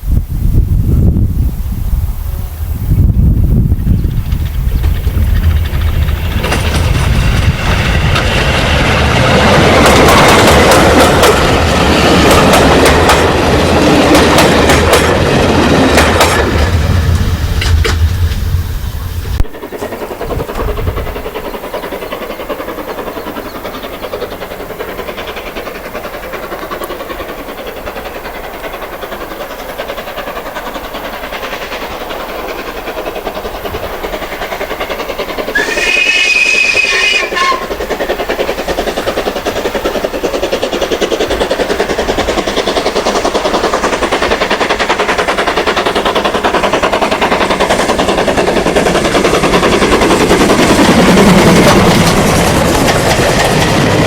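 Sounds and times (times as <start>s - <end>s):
steam train running and rattling: 0.0s - 54.0s
multi-tone steam whistle: 35.5s - 37.8s.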